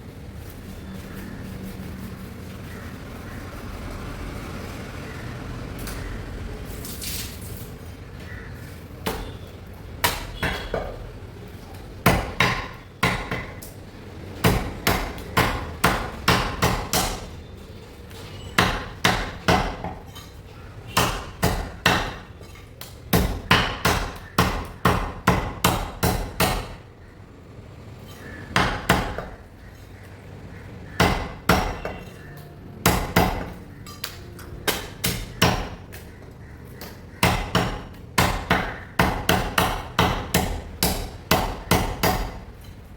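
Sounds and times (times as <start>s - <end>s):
cleaver chopping chicken on block: 9.0s - 9.4s, 10.0s - 10.9s, 12.1s - 13.6s, 14.4s - 17.3s, 18.6s - 20.0s, 21.0s - 22.3s, 23.1s - 26.8s, 28.6s - 29.4s, 30.9s - 32.0s, 32.9s - 33.6s, 34.7s - 35.8s, 36.8s - 42.4s.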